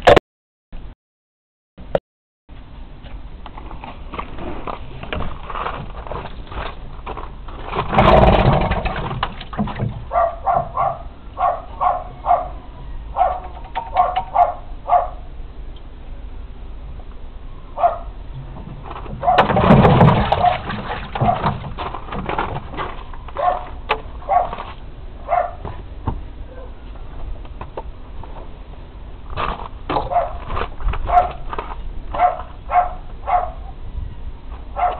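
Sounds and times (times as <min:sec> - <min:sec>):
rough loud bursts: 0:07.7 - 0:09.4
dog barking: 0:10.1 - 0:15.3, 0:17.8 - 0:18.1, 0:19.2 - 0:19.5, 0:23.4 - 0:24.6, 0:25.2 - 0:25.6, 0:26.5 - 0:26.8, 0:30.0 - 0:30.4, 0:31.0 - 0:31.4, 0:32.2 - 0:33.8.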